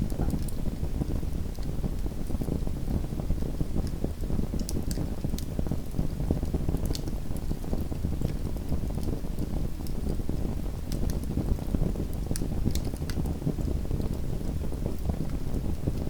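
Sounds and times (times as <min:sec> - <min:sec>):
wood crackling and popping: 0:00.0 - 0:00.6, 0:03.8 - 0:05.5, 0:06.4 - 0:07.6, 0:10.9 - 0:14.2
low rumble of flame: 0:00.0 - 0:16.0.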